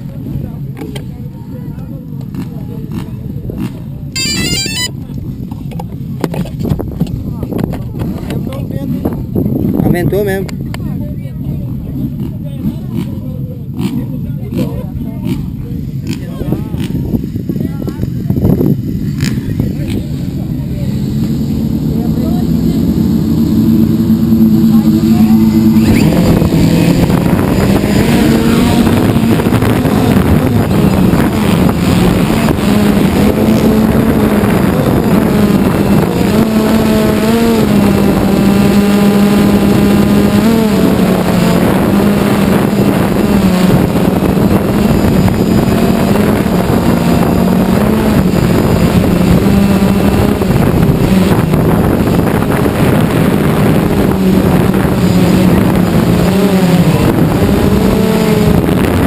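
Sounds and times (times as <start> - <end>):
motorbikes revving: 0.0 - 59.0
wind noise: 3.5 - 10.7, 16.2 - 20.6, 22.4 - 59.0
drone propellers humming: 3.9 - 7.4, 15.4 - 59.0.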